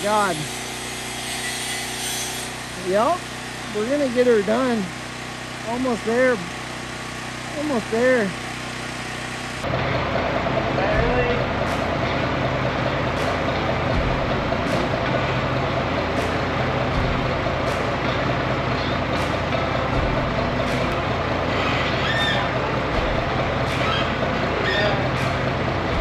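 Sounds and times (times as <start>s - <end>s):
engine running under load: 0.0s - 26.0s.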